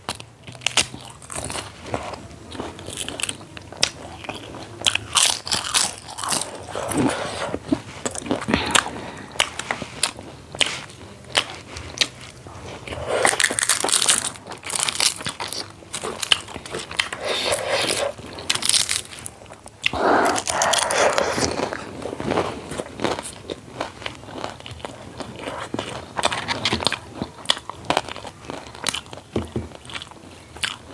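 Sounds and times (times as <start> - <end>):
crunchy chewing: 0.0 - 30.9
mouth clicks: 19.9 - 22.4.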